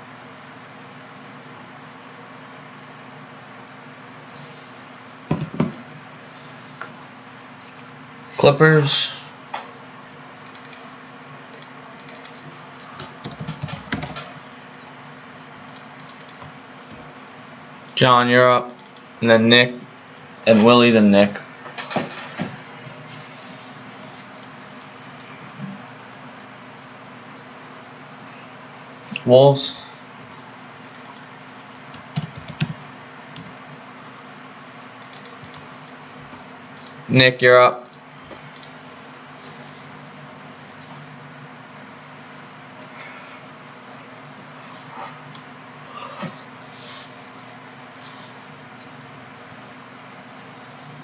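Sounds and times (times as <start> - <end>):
typing on computer keyboard: 10.5 - 10.8, 11.6 - 12.4, 13.0 - 14.3, 15.7 - 17.0, 31.9 - 32.8.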